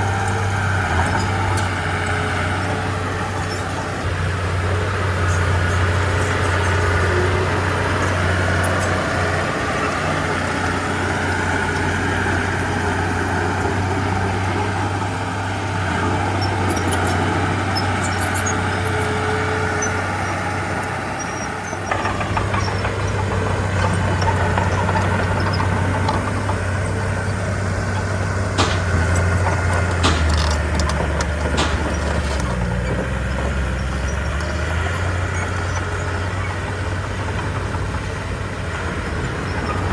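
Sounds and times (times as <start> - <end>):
diesel engine running: 0.0 - 39.9
sharp metal clanks: 28.5 - 32.7.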